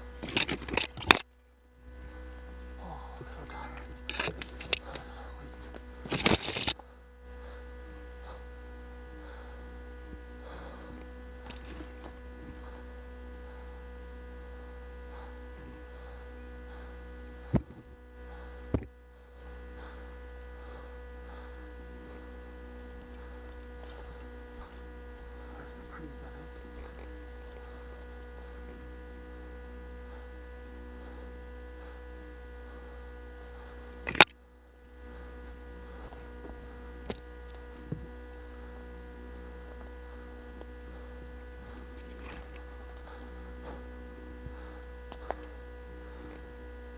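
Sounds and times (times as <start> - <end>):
steady electrical hum: 0.0 - 46.9.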